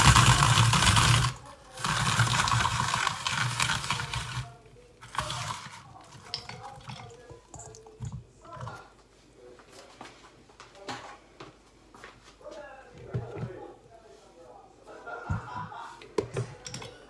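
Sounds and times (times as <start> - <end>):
hand-cranked grinder whirring: 0.0 - 6.7.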